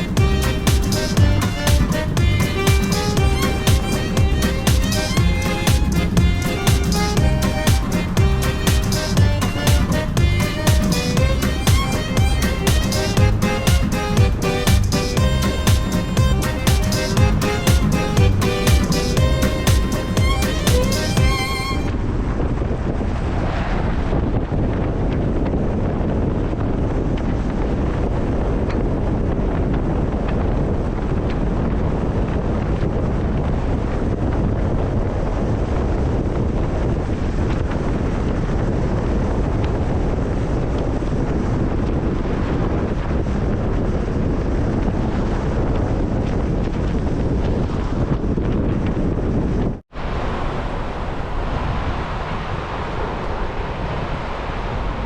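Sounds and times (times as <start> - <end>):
waterfall rushing water: 0.0 - 21.9, 50.0 - 55.0
wind noise on microphone: 0.0 - 55.0.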